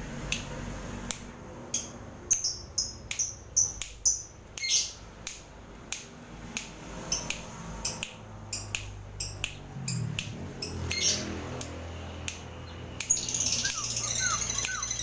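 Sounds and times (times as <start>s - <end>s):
lovebird chirping and squawking: 2.3s - 5.0s, 10.6s - 11.4s, 12.6s - 15.0s
bird clicks: 3.1s - 15.0s.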